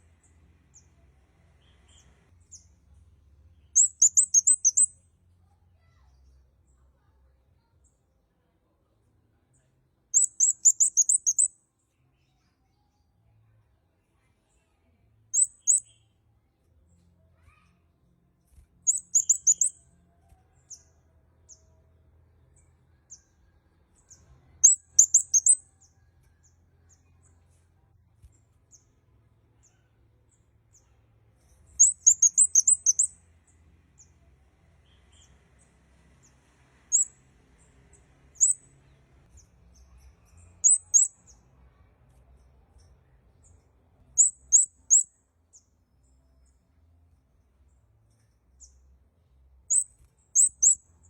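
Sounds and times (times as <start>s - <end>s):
bird high thin chirps: 3.7s - 5.0s, 10.1s - 11.5s, 15.3s - 16.1s, 18.5s - 19.9s, 24.1s - 25.9s, 31.4s - 33.2s, 36.9s - 37.2s, 38.4s - 38.6s, 40.0s - 41.3s, 44.2s - 45.1s, 49.7s - 50.8s.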